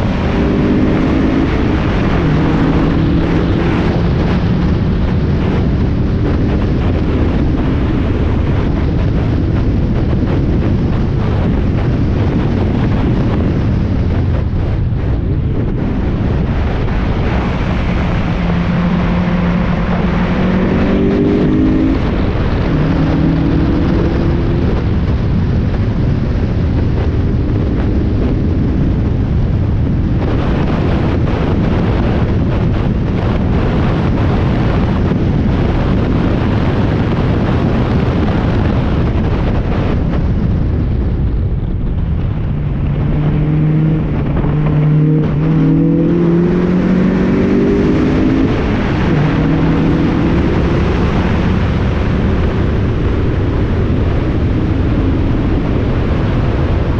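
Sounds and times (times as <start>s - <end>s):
wind and road noise: 0.0s - 56.9s
race car engine accelerating: 17.4s - 25.2s, 42.4s - 51.8s.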